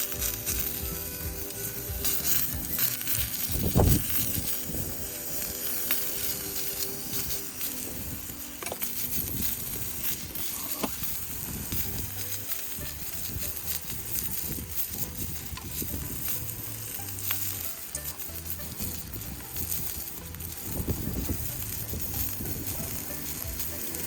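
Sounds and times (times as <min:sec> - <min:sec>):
wood fire sizzling and crackling: 0:00.0 - 0:24.0
sharp pops: 0:08.4 - 0:11.3.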